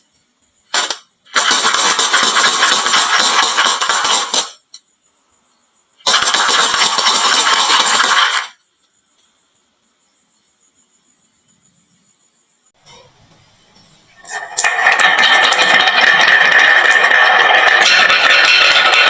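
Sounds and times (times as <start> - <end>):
marbles rolling down wooden run: 0.8 - 4.6, 6.1 - 8.6, 13.9 - 19.0.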